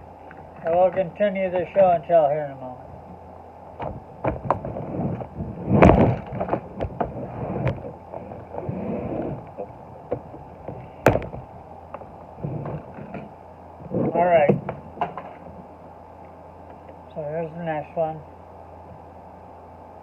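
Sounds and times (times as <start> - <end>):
heavy thump: 3.8 - 7.8, 10.1 - 11.5.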